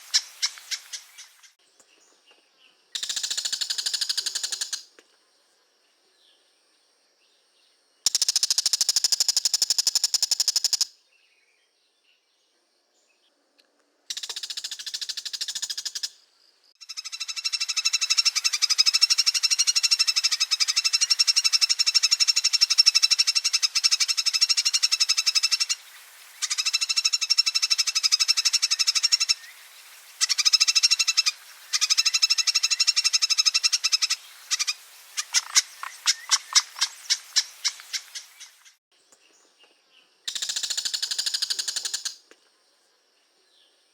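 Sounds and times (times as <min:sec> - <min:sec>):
bird rattling chatter calls: 0:00.0 - 0:01.6, 0:03.0 - 0:04.9, 0:08.1 - 0:10.9, 0:16.8 - 0:38.8, 0:40.3 - 0:42.2.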